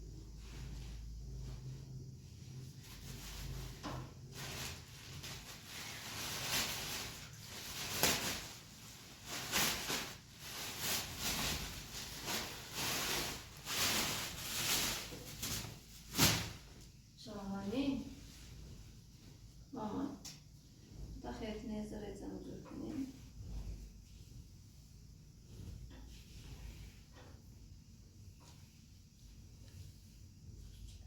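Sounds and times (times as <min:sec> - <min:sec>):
scraping and rustling strokes: 0:00.2 - 0:16.8, 0:23.0 - 0:27.6.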